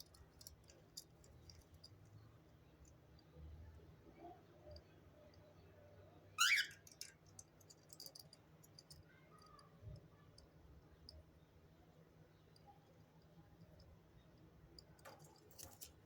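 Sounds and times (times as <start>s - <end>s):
parrot chirp: 6.4s - 6.9s.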